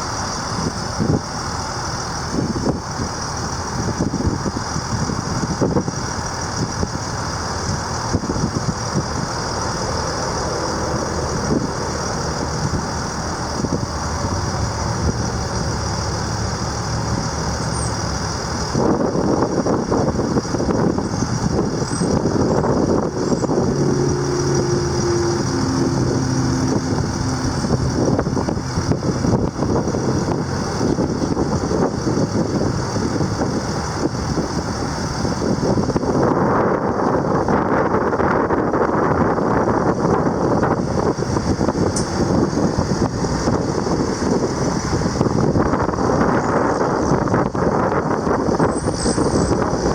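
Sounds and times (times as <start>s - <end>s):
diesel truck engine running: 0.0s - 49.9s
short whining tones: 21.0s - 29.8s, 48.6s - 49.7s.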